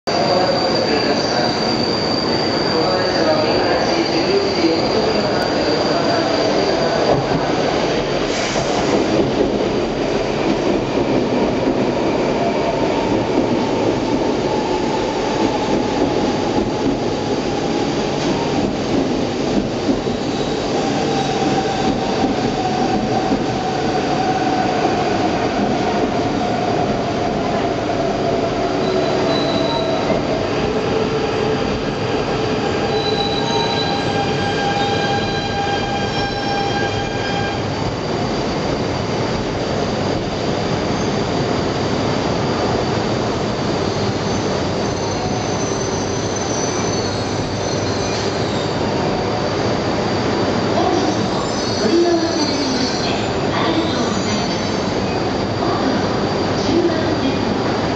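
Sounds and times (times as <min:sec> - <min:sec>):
high brake squeal: 0:00.1 - 0:07.4, 0:28.8 - 0:30.2, 0:32.6 - 0:37.7, 0:43.9 - 0:49.2, 0:51.0 - 0:55.3
train wheels rumbling on rail: 0:00.1 - 0:57.9.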